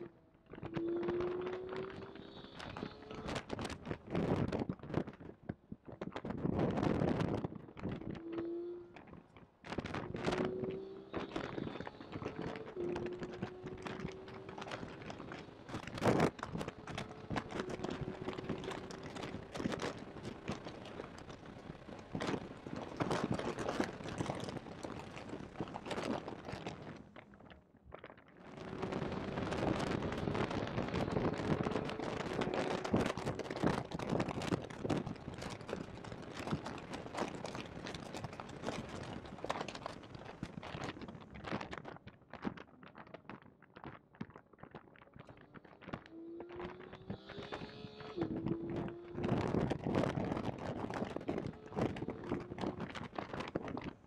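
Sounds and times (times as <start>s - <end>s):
car engine at full throttle: 0.0s - 4.2s, 8.0s - 26.9s, 28.4s - 39.9s, 45.9s - 53.9s
crackling microphone distortion: 0.0s - 54.0s.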